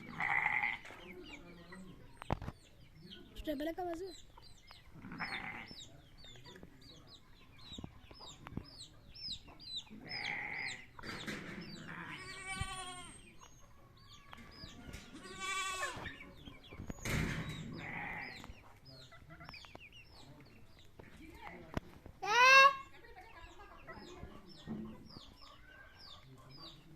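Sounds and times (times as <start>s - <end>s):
goat bleating: 0.0s - 0.8s, 5.0s - 5.7s, 10.1s - 10.8s, 11.8s - 13.2s, 15.2s - 16.0s, 17.8s - 18.4s
chickens peeping and clucking: 0.0s - 26.9s.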